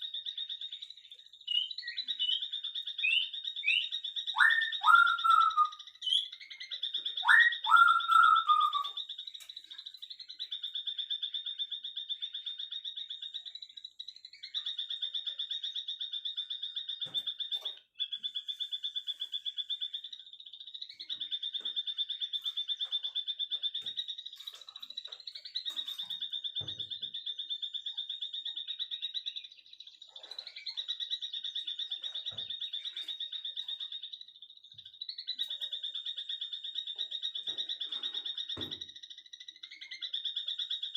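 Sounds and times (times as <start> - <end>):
bird whistled calls: 1.5 - 9.0.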